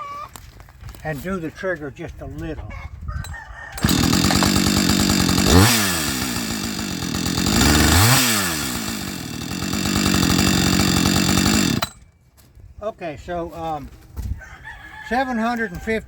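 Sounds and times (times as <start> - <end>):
chainsaw engine starting and running: 3.8 - 12.0.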